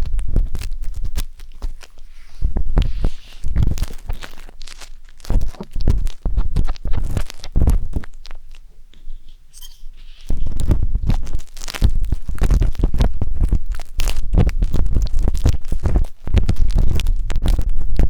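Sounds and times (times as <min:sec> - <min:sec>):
wooden skewers scraping microphone: 0:02.1 - 0:04.2, 0:09.0 - 0:11.2.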